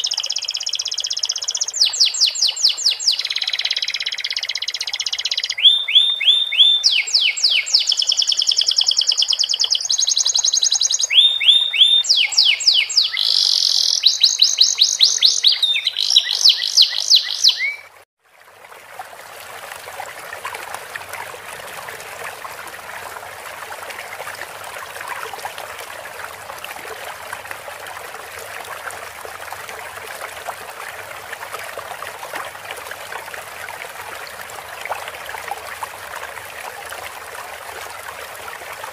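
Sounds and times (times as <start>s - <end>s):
canary singing trilled phrases: 0.0s - 17.9s
running water: 0.0s - 38.9s.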